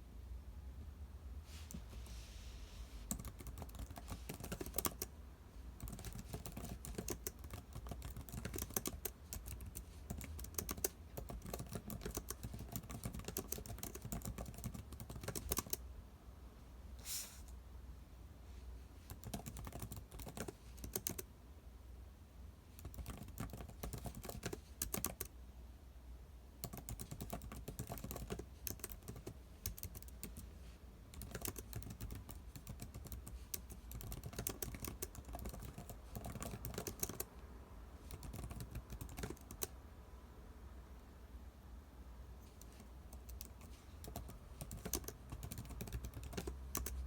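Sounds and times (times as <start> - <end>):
faint low hum: 0.0 - 47.0
computer keyboard typing: 3.1 - 5.1, 5.8 - 15.8, 19.0 - 21.3, 22.8 - 25.3, 26.6 - 30.5, 31.1 - 37.3, 38.0 - 39.8, 42.5 - 47.0.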